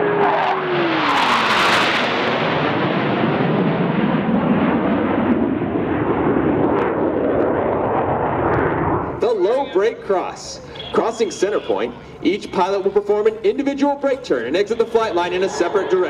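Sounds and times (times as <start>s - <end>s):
jets roaring overhead: 0.0s - 16.0s.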